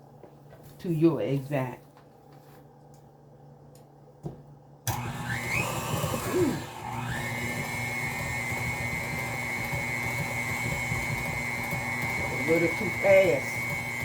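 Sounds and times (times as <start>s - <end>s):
electric mixer whining: 4.9s - 14.0s.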